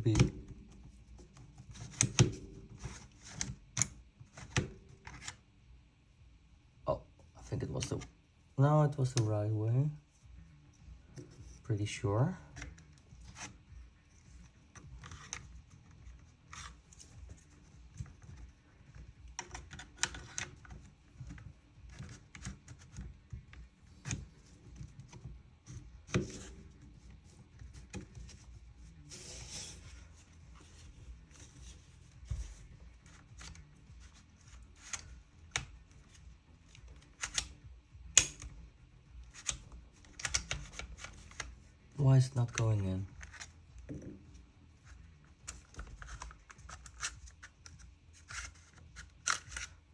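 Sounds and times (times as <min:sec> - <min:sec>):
airsoft gun parts clicking: 0:33.0 - 0:38.6, 0:39.2 - 0:41.5, 0:45.5 - 0:49.8.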